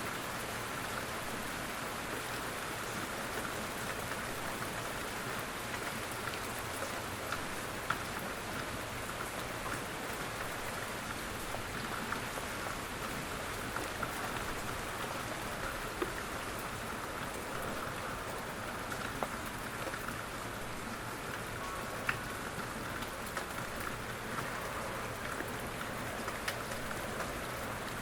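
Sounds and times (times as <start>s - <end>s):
gentle rain falling: 0.0s - 28.0s
water drips ticking: 21.3s - 28.0s.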